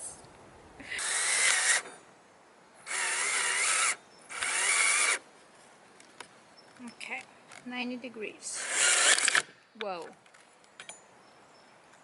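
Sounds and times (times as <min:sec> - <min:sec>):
power drill motor whine: 0:01.0 - 0:01.8, 0:02.9 - 0:05.2.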